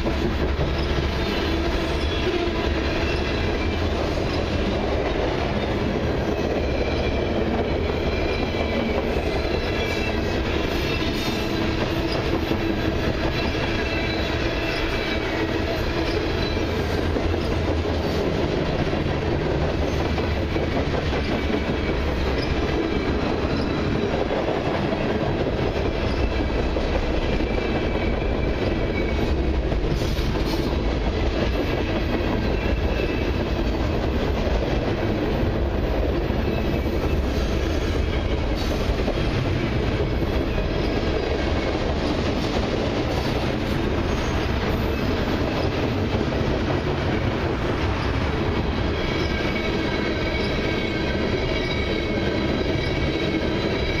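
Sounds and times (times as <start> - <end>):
freight train wheels clattering: 0.0 - 54.0
high wheel squeal: 5.6 - 18.2, 43.2 - 45.7, 47.9 - 54.0.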